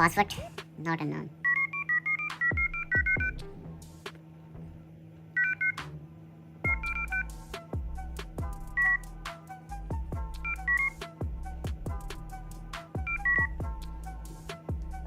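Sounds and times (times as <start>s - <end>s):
phone keypad beeps: 1.4s - 3.4s, 5.4s - 5.8s, 6.7s - 7.3s, 10.4s - 11.0s, 13.0s - 13.5s.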